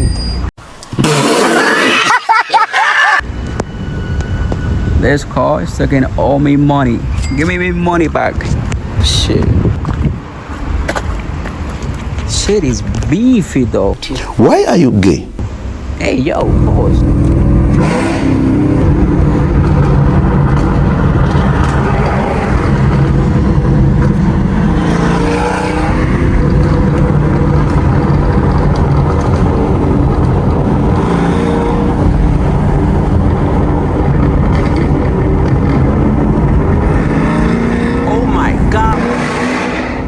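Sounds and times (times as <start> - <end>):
car engine revving while driving: 16.4 - 40.0.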